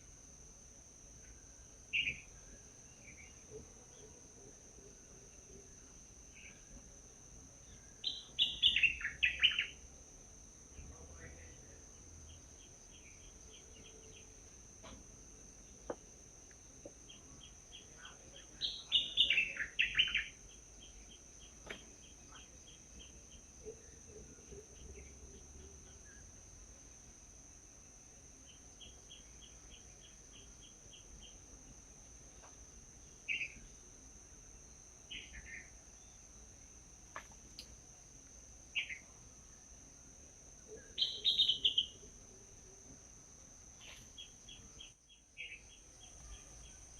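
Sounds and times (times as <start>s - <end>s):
high insect drone: 0.0s - 46.9s
small birds chirping: 1.9s - 3.6s, 7.6s - 9.8s, 16.8s - 26.2s, 28.4s - 31.5s, 32.3s - 33.8s, 35.1s - 36.2s, 38.8s - 39.2s, 40.7s - 42.0s, 43.8s - 46.9s.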